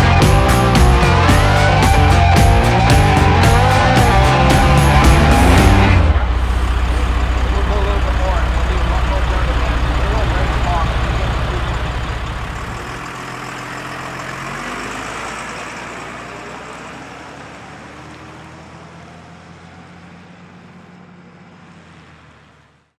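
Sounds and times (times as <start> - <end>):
diesel truck engine idling: 0.0 - 17.5.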